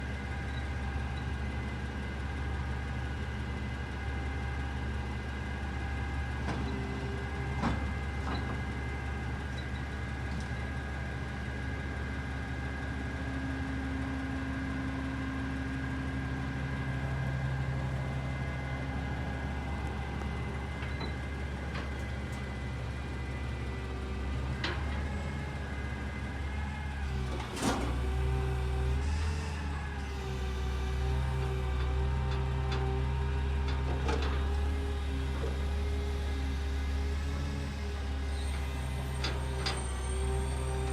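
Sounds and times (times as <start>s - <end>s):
garbage truck engine humming: 0.0s - 40.9s.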